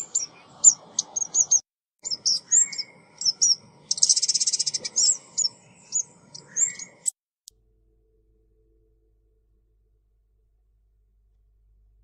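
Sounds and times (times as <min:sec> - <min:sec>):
songbird chirping and trilling: 0:00.0 - 0:07.2.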